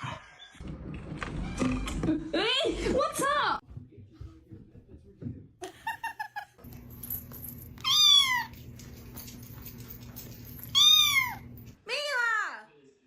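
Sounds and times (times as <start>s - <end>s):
cat meowing: 7.8s - 8.6s, 10.7s - 11.5s.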